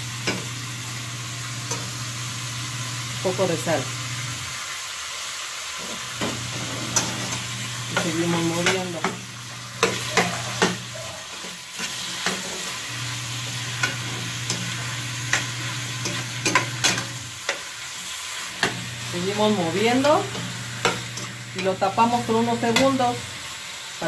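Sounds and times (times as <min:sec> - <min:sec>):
chicken and onion sizzling in oil: 0:00.0 - 0:24.0
metal spoon scraping a pot: 0:06.5 - 0:07.5.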